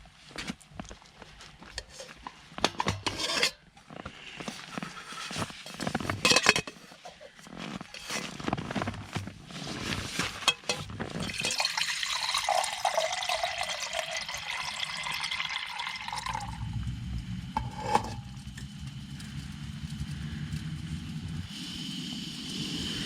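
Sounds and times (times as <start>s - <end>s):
hot water pouring into pouch: 8.9s - 16.8s
low steady rumble: 15.9s - 23.0s.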